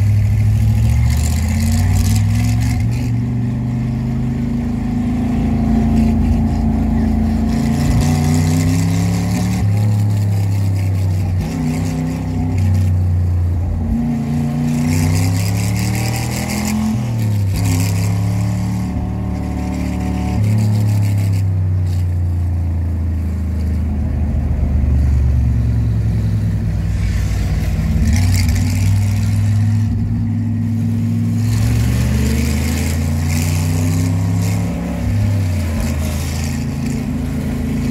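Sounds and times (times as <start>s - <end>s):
racing car engine revving: 0.0s - 37.9s
rushing noise: 23.7s - 37.9s.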